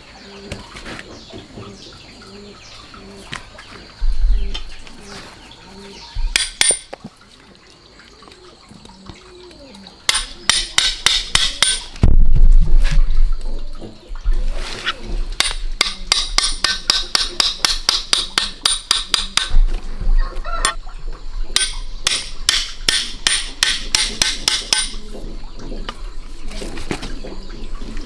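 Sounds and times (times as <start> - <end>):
rapid sharp knocks: 10.1 - 11.9, 15.4 - 19.6, 21.6 - 25.0.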